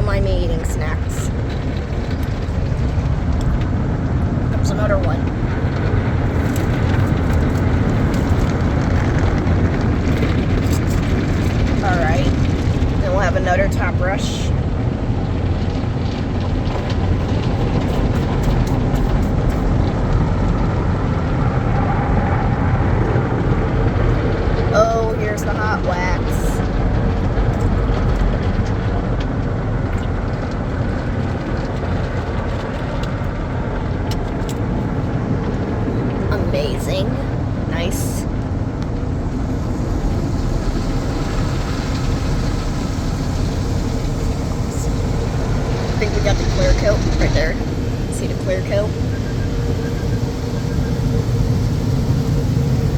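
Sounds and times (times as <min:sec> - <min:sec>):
car wash equipment running: 0:00.0 - 0:52.9
water spray on car: 0:00.0 - 0:52.9
car wash brush and water spray: 0:16.8 - 0:20.3.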